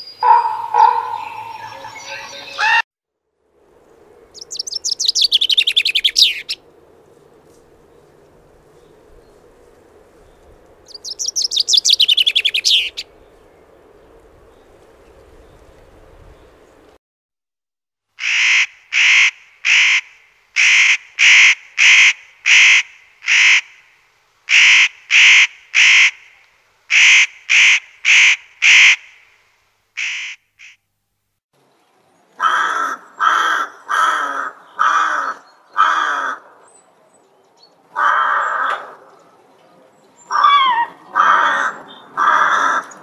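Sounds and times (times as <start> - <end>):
birds calling: 0.0 - 2.8, 4.3 - 6.7, 10.2 - 15.7, 32.3 - 43.0.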